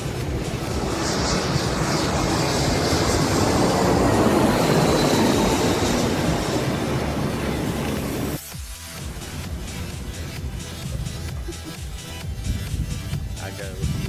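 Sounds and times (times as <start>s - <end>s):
faint high whine: 0.0s - 8.4s, 9.0s - 11.4s
jet engines roaring: 0.0s - 14.0s.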